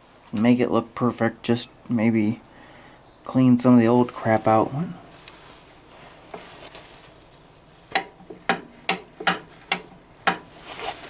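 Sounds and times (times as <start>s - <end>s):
faint rubbing: 4.0s - 8.3s, 10.4s - 11.0s
hand tool knocking on metal: 7.9s - 10.5s.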